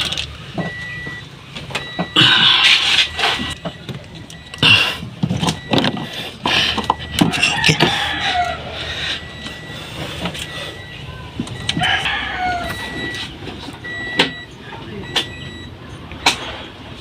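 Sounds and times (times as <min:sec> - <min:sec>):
hands and tools clattering on car: 0:00.0 - 0:08.1
rooster crowing: 0:07.2 - 0:09.0, 0:11.7 - 0:13.1.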